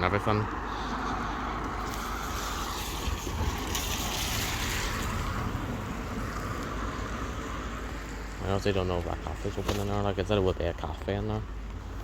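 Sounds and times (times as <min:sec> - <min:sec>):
wind buffeting microphone: 0:01.6 - 0:08.3.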